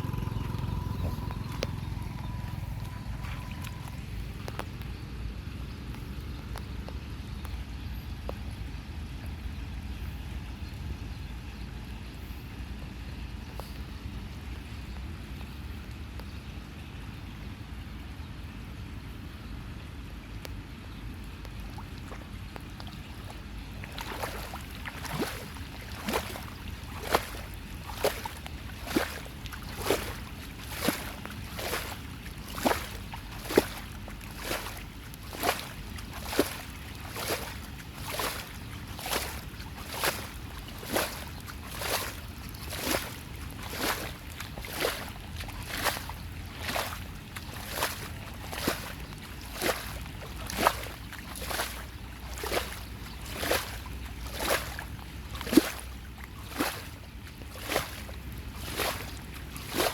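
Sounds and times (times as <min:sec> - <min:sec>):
steady low rush: 0:00.0 - 0:04.5
water sloshing: 0:00.0 - 0:04.8, 0:21.2 - 0:59.9.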